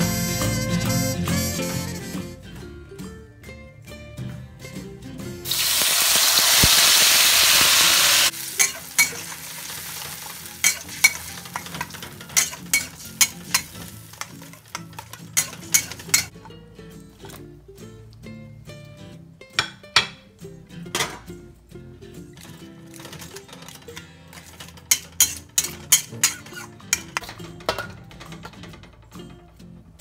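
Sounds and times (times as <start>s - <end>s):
paste sizzling in hot oil: 5.5s - 16.3s
metal spatula scraping wok: 8.0s - 16.3s, 22.9s - 28.8s.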